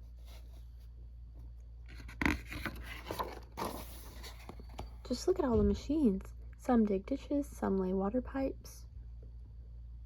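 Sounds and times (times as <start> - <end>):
steady low hum: 0.0 - 10.0
book page turning: 1.9 - 4.9.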